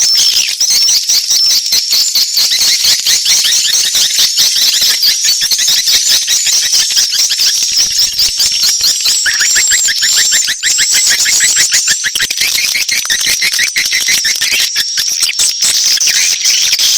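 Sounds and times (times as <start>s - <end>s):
swiftlets chirping and twittering: 0.0s - 16.9s.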